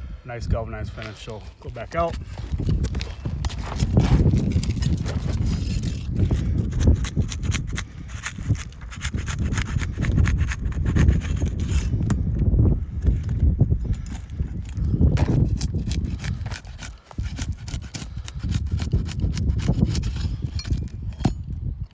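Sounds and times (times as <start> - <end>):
footsteps on a shingle roof: 0.9 - 6.8, 12.8 - 17.3.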